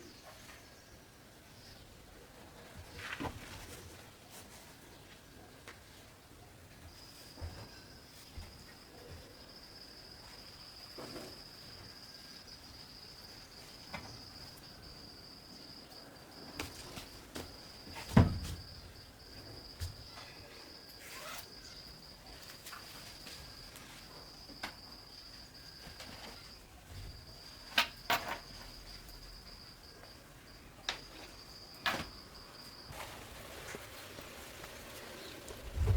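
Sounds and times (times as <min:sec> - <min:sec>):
insect trilling: 0:21.0 - 0:22.0.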